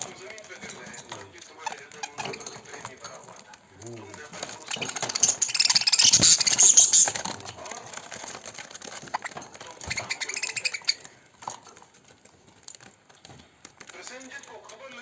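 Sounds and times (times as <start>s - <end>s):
budgerigars chattering: 1.6s - 2.5s, 4.5s - 7.3s, 9.0s - 11.1s.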